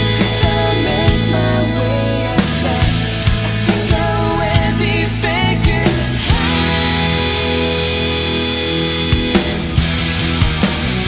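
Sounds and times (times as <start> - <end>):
drums with cymbal crashes: 0.0 - 11.0
rock band playing: 0.0 - 11.0.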